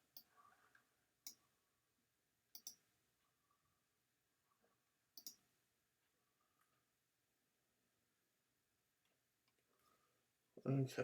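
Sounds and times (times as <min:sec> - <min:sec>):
faint sharp clicks: 0:02.6 - 0:02.8.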